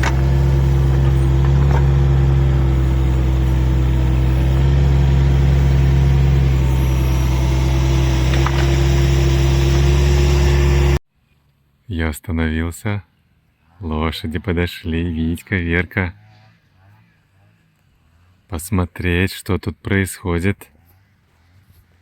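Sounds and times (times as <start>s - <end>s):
excavator engine running: 0.0s - 11.0s.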